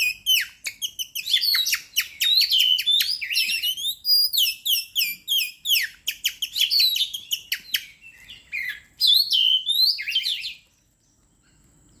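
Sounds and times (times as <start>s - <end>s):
songbird whistles and chirps: 0.0s - 12.0s.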